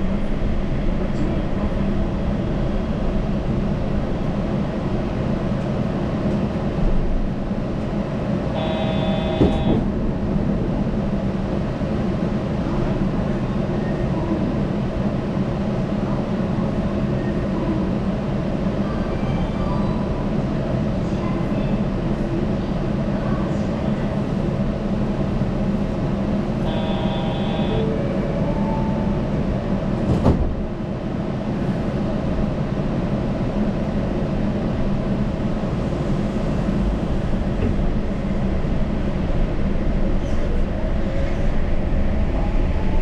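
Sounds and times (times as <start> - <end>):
train rolling and motor noise: 0.0 - 43.0
short electronic tone: 8.6 - 9.8, 26.7 - 27.9.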